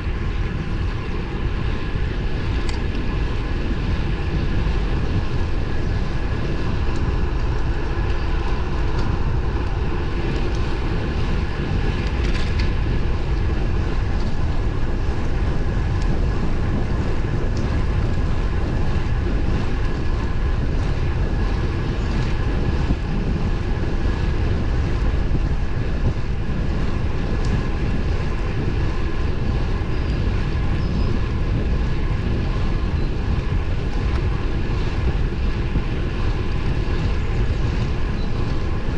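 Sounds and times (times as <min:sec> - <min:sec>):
bicycle road noise: 0:00.0 - 0:38.9
faint steady whine: 0:00.0 - 0:38.9
wind rush: 0:00.0 - 0:38.9.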